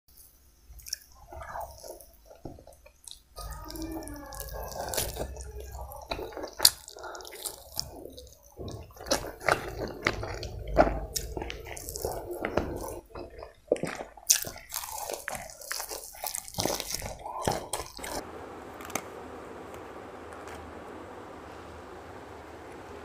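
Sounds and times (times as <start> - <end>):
wet chewing and lip smacks: 0.8 - 3.3, 4.3 - 18.2.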